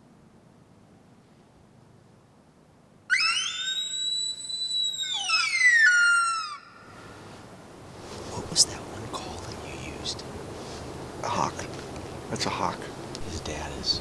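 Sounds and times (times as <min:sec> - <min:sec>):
shrill hawk call scream: 0:03.1 - 0:07.4.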